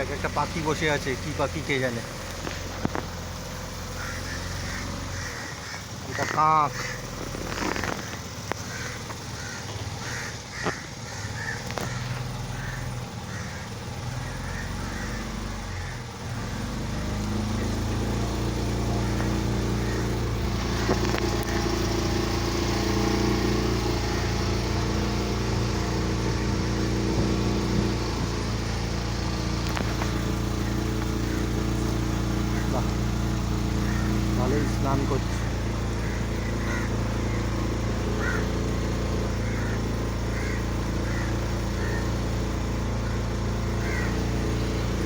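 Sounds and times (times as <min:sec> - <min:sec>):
boat engine humming: 0:00.0 - 0:45.0
crow cawing: 0:03.6 - 0:45.0.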